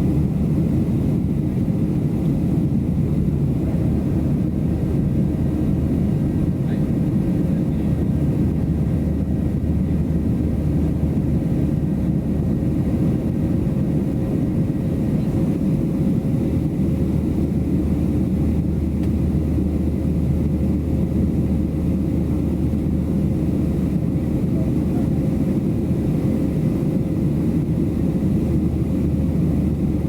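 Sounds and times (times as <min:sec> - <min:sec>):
engine and airflow rush: 0:00.0 - 0:30.0.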